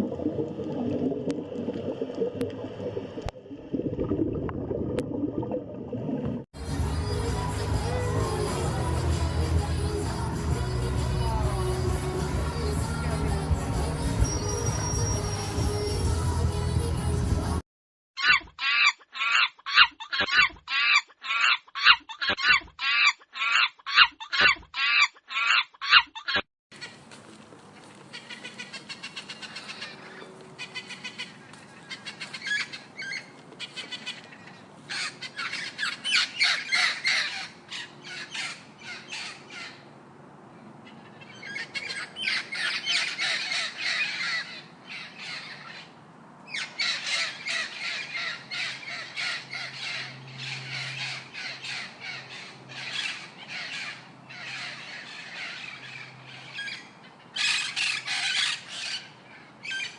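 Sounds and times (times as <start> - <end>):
birds squawking and calling: 27.8 - 39.9, 40.8 - 59.9.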